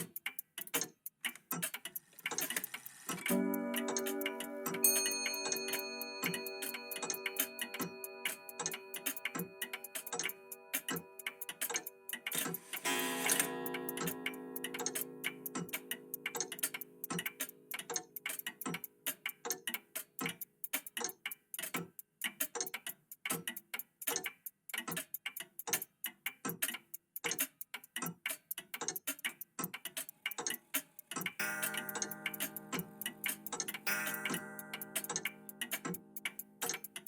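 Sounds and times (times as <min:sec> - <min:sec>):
mechanical clocks ticking: 0:00.0 - 0:37.0
held musical tones: 0:03.1 - 0:16.6.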